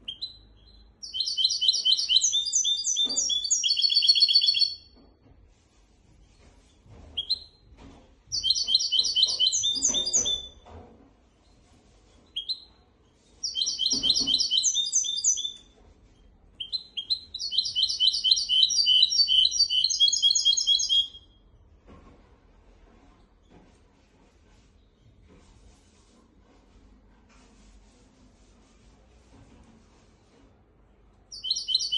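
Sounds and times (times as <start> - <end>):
finch chirping song: 0.0 - 5.0, 7.2 - 7.6, 8.3 - 10.6, 13.4 - 15.7, 16.6 - 21.2, 31.3 - 31.9.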